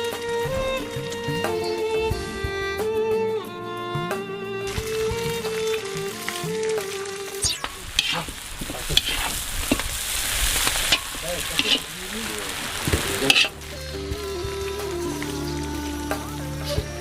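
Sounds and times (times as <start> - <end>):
music: 0.0 - 8.2, 12.5 - 17.0
meat sizzling: 4.7 - 16.8.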